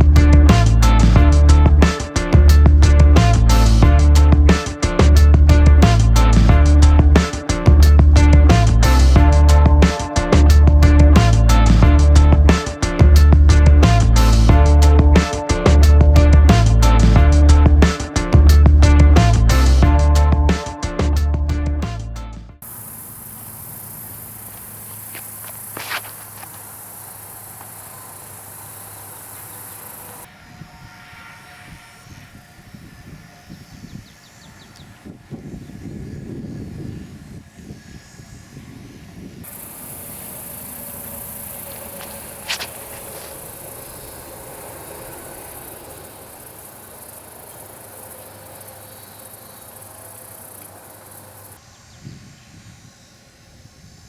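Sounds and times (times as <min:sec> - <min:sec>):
insects chirring: 0:22.6 - 0:54.0.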